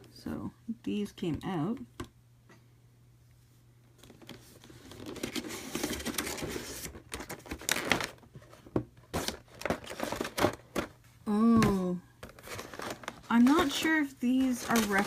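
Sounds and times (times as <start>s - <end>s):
packaging crinkling and rustling: 4.0s - 11.0s, 12.2s - 15.0s.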